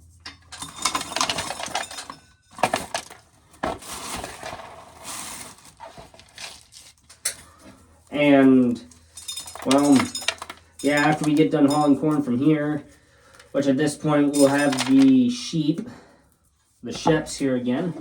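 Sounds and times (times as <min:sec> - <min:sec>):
small metallic clinks: 0:08.9 - 0:11.9.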